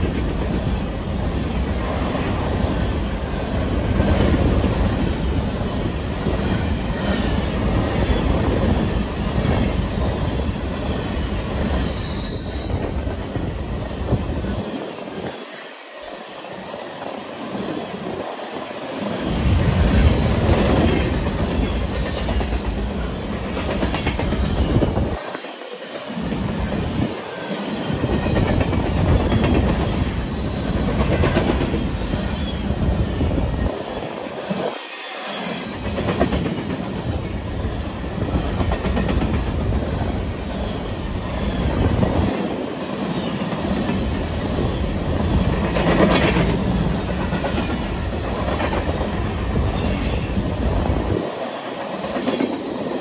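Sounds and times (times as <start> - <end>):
train wheels rumbling on rails: 0.0 - 53.0
high wheel squeal: 4.6 - 6.3, 7.2 - 13.0, 14.2 - 15.9, 18.9 - 22.8, 24.7 - 33.7, 34.8 - 36.7, 44.2 - 46.1, 47.2 - 51.0, 51.8 - 53.0.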